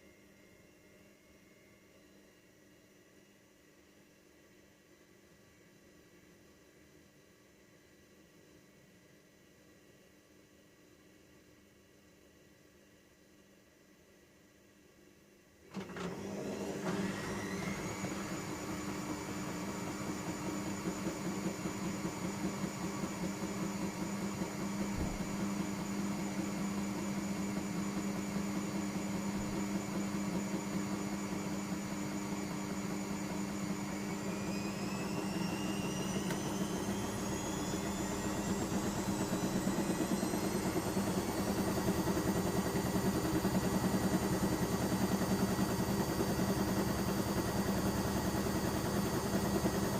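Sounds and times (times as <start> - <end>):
washing machine motor whine: 15.7 - 49.9.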